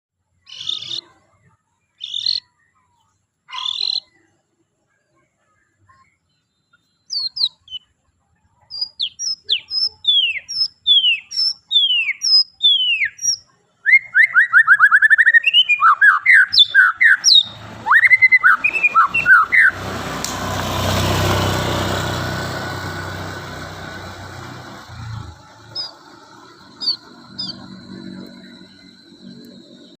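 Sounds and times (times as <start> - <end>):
songbird singing whistled notes: 0.4 - 4.4, 5.9 - 8.0, 8.6 - 19.9, 24.7 - 30.0.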